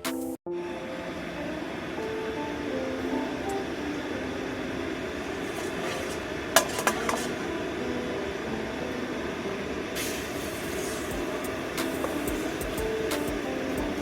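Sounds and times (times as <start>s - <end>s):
spatula stirring and scraping: 5.6s - 7.4s.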